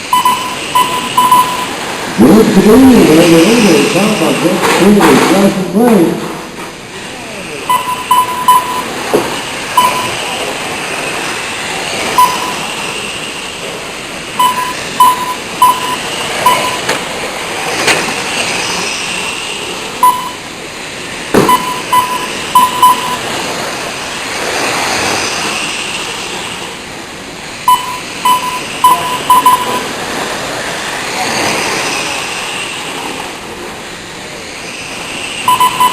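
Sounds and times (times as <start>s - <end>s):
racing truck motors whirring: 0.0s - 35.9s
short electronic beeps: 0.1s - 1.8s, 7.6s - 9.0s, 9.7s - 10.3s, 12.2s - 12.7s, 14.4s - 16.9s, 20.0s - 20.4s, 21.4s - 23.3s, 27.6s - 29.9s, 35.4s - 35.9s.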